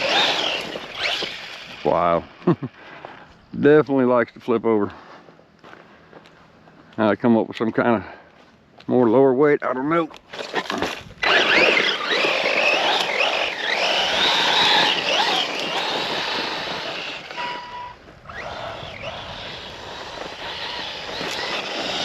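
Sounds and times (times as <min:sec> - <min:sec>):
electric motor whining: 0:00.0 - 0:02.5, 0:10.6 - 0:22.0.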